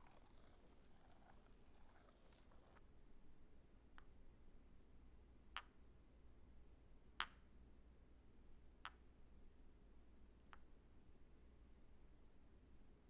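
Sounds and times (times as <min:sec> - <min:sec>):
light clinks of small objects: 0:00.0 - 0:02.8.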